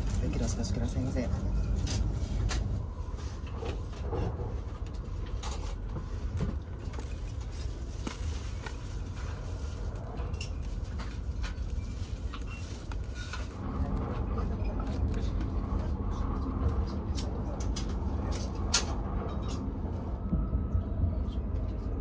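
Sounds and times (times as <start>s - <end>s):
train cabin rumble: 0.0s - 22.0s.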